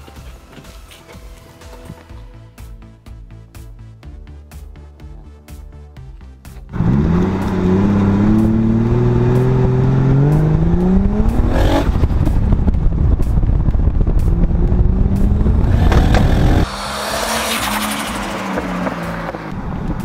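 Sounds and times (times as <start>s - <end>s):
background music: 0.0s - 20.0s
car engine accelerating: 6.7s - 20.0s.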